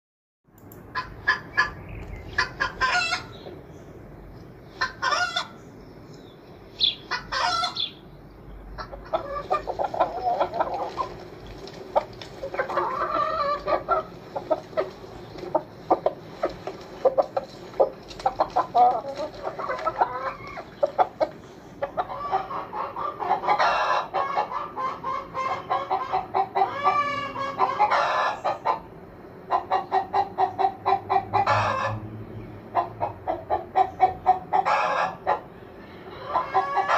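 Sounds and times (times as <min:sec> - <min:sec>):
chickens clucking: 0:00.9 - 0:03.8, 0:04.6 - 0:08.0, 0:08.7 - 0:32.0, 0:32.6 - 0:36.9
chicken squawks: 0:02.4 - 0:03.4, 0:04.8 - 0:05.6, 0:06.8 - 0:08.0, 0:08.8 - 0:11.1, 0:12.5 - 0:14.9, 0:17.0 - 0:28.8, 0:32.8 - 0:35.5, 0:36.1 - 0:36.9.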